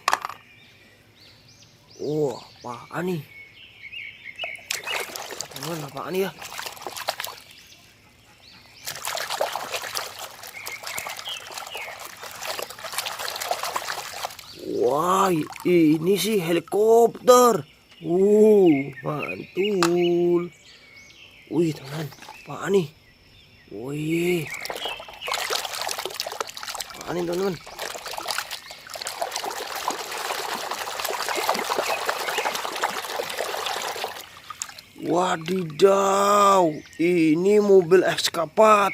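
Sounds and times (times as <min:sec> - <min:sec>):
plastic toy clicks and knocks: 0:00.0 - 0:00.4
water pouring and splashing: 0:04.4 - 0:07.6, 0:08.8 - 0:17.4, 0:24.1 - 0:38.4.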